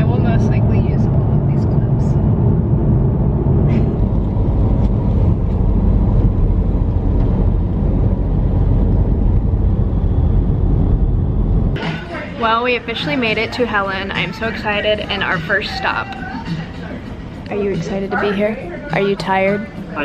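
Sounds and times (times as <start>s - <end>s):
car driving on road: 0.0s - 11.8s.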